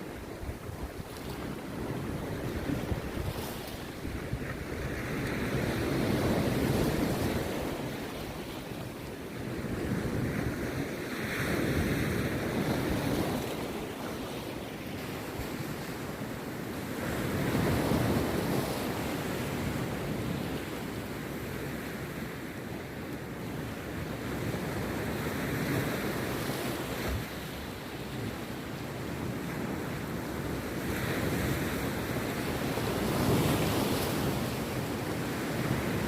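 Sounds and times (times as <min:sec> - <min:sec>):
wind buffeting microphone: 0:00.0 - 0:14.3
sea waves breaking on beach: 0:00.0 - 0:36.0.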